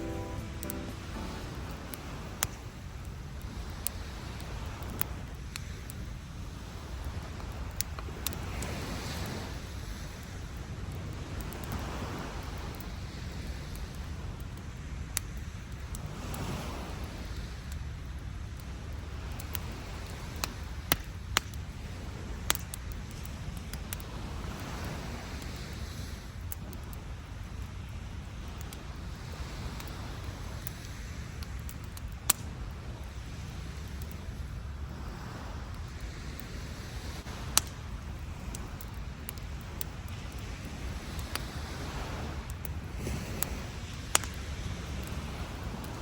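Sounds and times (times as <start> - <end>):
surf rumbling: 0.0 - 4.2
campfire crackling and popping: 0.0 - 6.2, 7.0 - 8.7, 17.7 - 24.2, 26.4 - 27.7, 29.8 - 34.8, 35.7 - 41.8, 42.4 - 45.2
surf rumble: 0.0 - 14.3, 32.4 - 46.0
wind: 0.0 - 46.0.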